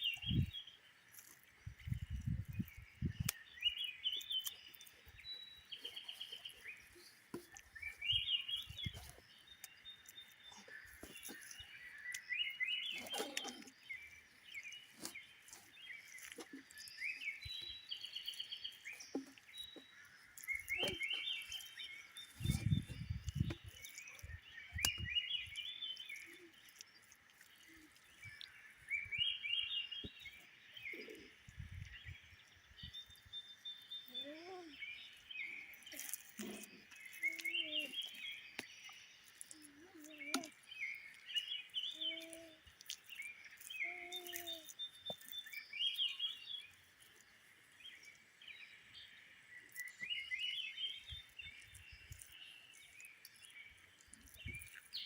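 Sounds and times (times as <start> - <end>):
dull low thuds: 22.4 - 23.7
bird singing short phrase: 27.7 - 46.8.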